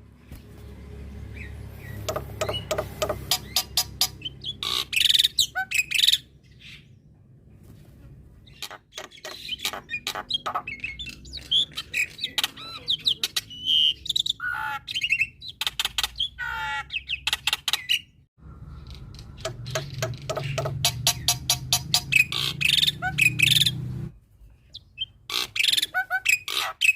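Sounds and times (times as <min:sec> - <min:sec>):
bird song with clicks and whistles: 0:02.0 - 0:06.8, 0:08.6 - 0:16.4, 0:17.0 - 0:23.8.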